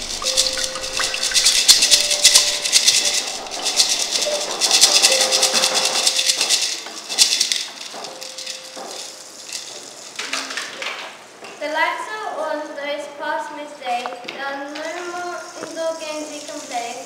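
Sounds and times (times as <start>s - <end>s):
long held instrument notes: 0.0s - 6.9s
maracas rattling: 0.0s - 10.9s, 14.4s - 17.0s.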